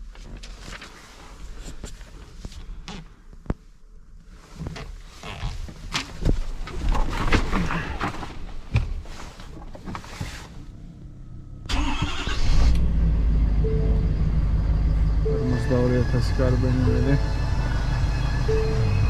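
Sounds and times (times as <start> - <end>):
vehicle engine running: 12.4 - 19.0.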